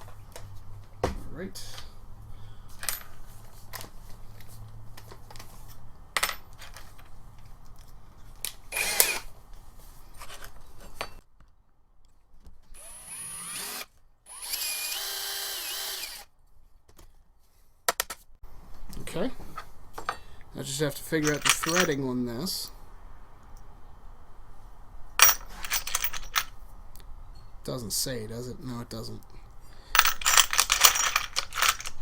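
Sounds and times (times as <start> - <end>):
power drill drilling: 8.7 - 9.2, 12.8 - 16.2
small metal parts clicking: 21.2 - 22.0, 25.2 - 26.5, 30.0 - 32.0.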